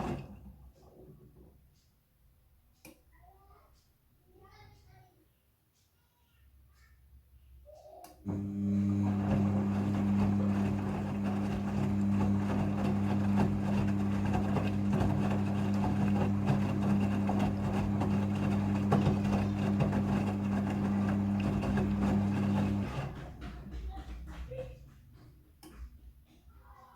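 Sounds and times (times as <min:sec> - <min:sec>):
washing machine running: 0:00.0 - 0:01.2, 0:08.2 - 0:24.6.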